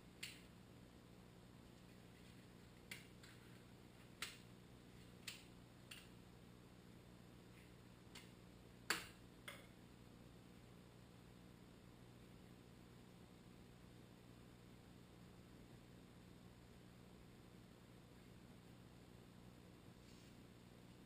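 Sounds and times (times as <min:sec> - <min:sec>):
faint sharp clicks and taps: 0:00.2 - 0:00.5, 0:01.7 - 0:06.2, 0:07.5 - 0:09.7.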